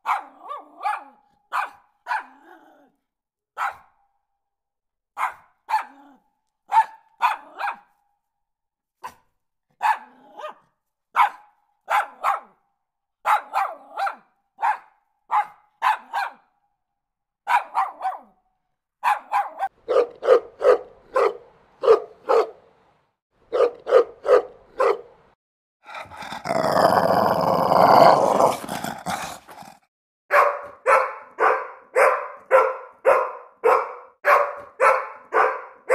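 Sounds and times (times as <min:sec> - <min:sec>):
dog barking: 0:00.0 - 0:02.9, 0:03.6 - 0:04.0, 0:05.2 - 0:08.0, 0:09.0 - 0:12.6, 0:13.2 - 0:16.6, 0:17.4 - 0:18.4, 0:19.0 - 0:22.6, 0:23.5 - 0:25.2, 0:28.4 - 0:35.9.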